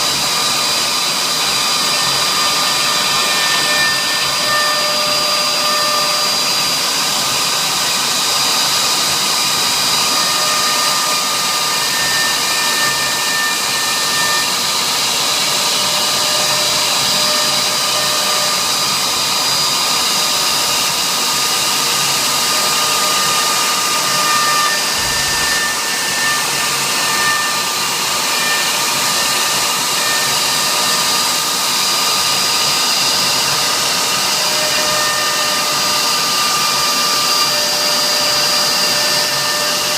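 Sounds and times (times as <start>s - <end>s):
router spindle cutting with whine: 0.0s - 39.9s.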